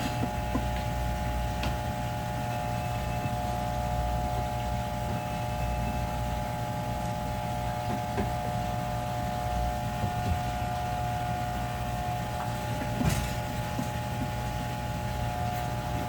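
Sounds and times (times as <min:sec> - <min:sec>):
high whine: 0:00.0 - 0:16.0
machine hum: 0:00.0 - 0:16.0.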